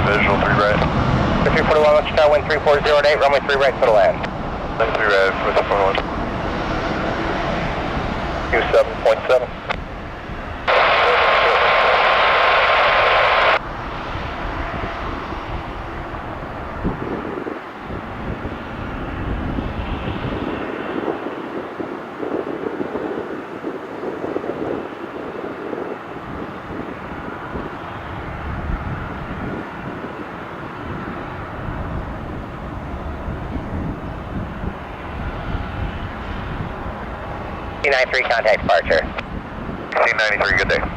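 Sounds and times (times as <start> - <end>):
radio static with steady tone: 0.0 - 6.0, 8.5 - 9.8, 10.6 - 13.6, 37.8 - 39.2, 39.9 - 40.9
jet airliner engines rumbling: 0.0 - 40.9.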